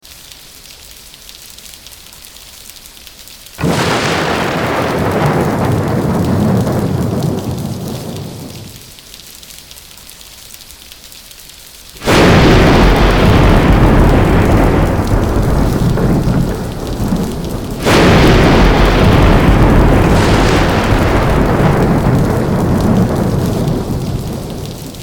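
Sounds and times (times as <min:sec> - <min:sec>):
steady rain hiss: 0:00.0 - 0:25.0
thunderclap rumbling: 0:03.6 - 0:09.0, 0:12.0 - 0:25.0.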